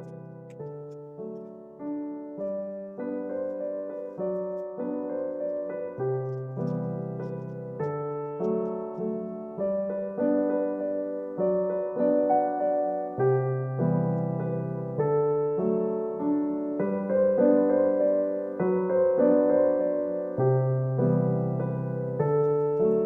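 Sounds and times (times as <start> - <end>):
piano notes and chords: 0.0 - 23.0.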